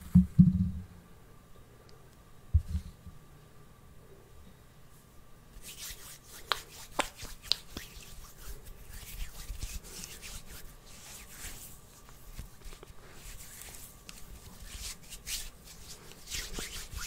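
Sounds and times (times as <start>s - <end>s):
rubbing and scratching on object: 5.6s - 17.0s.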